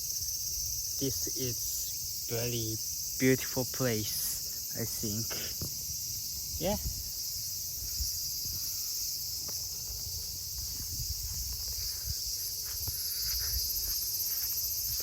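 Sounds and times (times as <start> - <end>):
insects shrilling: 0.0 - 15.0
faint irregular thuds: 5.4 - 7.0, 9.3 - 14.5.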